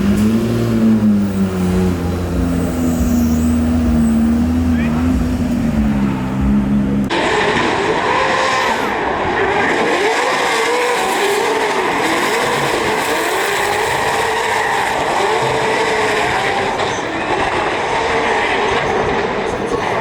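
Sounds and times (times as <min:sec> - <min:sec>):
tyres screeching: 0:00.0 - 0:07.1
car engine revving: 0:00.0 - 0:20.0.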